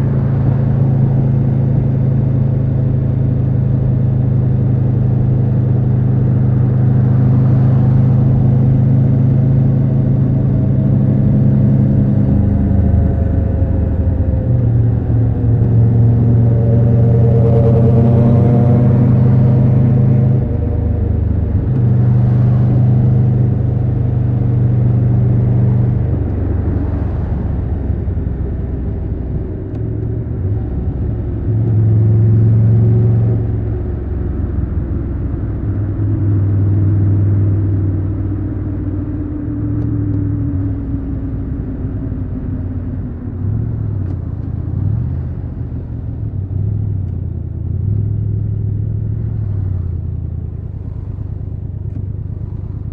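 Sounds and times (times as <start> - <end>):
motorcycle engine revving: 5.8 - 28.8
slowly falling tone: 7.0 - 26.9.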